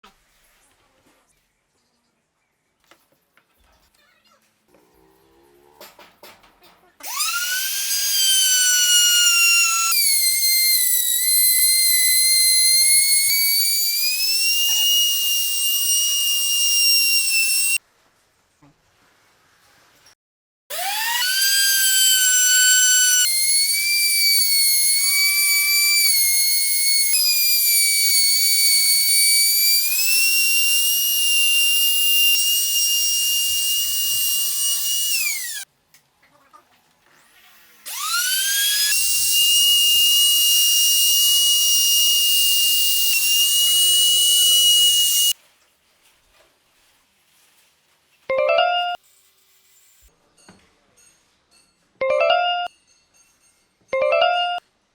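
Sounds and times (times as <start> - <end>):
power tool motor whining: 7.0 - 17.8, 20.7 - 35.6, 37.8 - 45.4.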